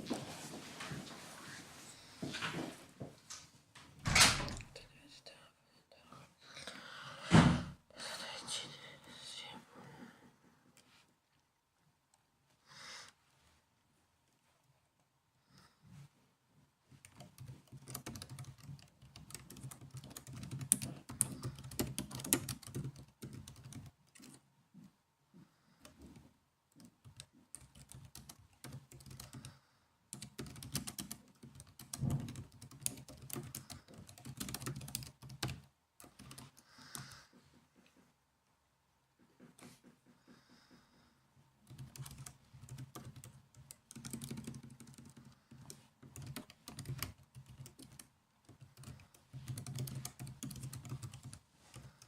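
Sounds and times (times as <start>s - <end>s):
laptop keyboard typing: 17.0s - 24.4s, 25.8s - 37.3s, 41.6s - 52.0s.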